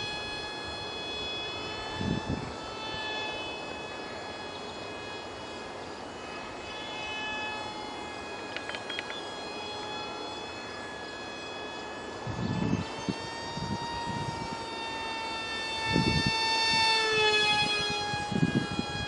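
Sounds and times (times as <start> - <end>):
electric motor and propeller whining: 0.0 - 19.0
short clicks: 8.5 - 9.3.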